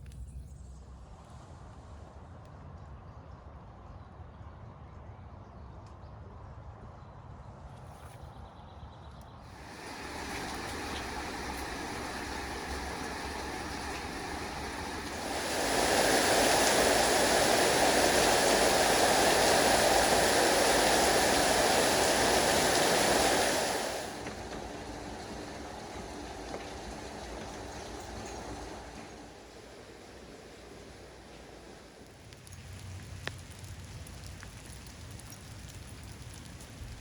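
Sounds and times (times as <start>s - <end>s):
flowing water rushing: 9.5s - 32.4s.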